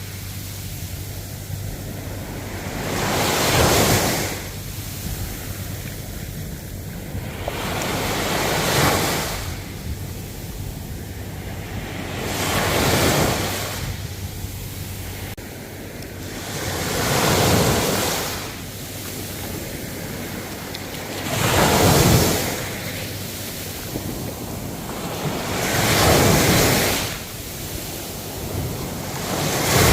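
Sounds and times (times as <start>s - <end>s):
ocean waves breaking: 0.0s - 29.9s
surf hiss: 0.0s - 29.9s
wind on microphone: 0.0s - 29.9s.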